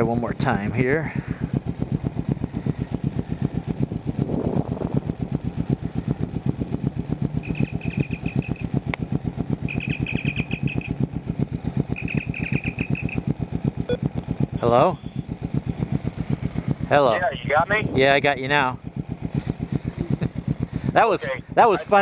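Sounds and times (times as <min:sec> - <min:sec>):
motorcycle engine idling: 0:00.0 - 0:22.0
high warbling electronic tone: 0:07.4 - 0:08.7, 0:09.7 - 0:11.0, 0:11.9 - 0:13.2.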